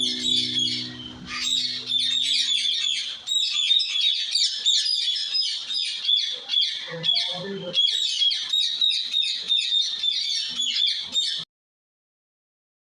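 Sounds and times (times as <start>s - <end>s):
acoustic guitar chord ringing: 0.0s - 3.2s.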